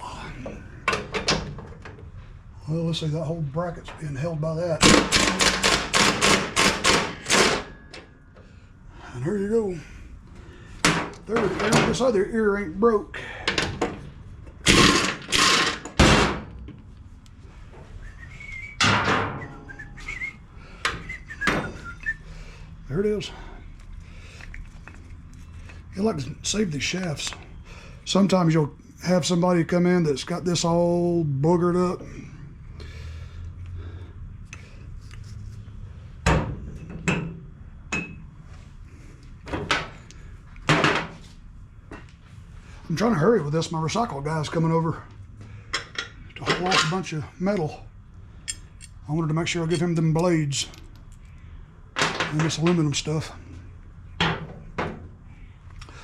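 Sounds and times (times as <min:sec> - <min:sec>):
metal banging and clatter: 0:04.8 - 0:08.2, 0:18.8 - 0:19.6.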